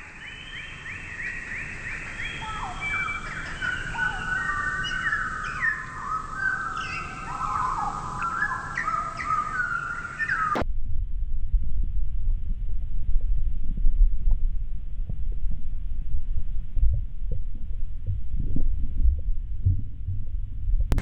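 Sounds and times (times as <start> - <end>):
small birds chirping: 0.0 - 10.6
whistled bird calls: 0.0 - 10.6.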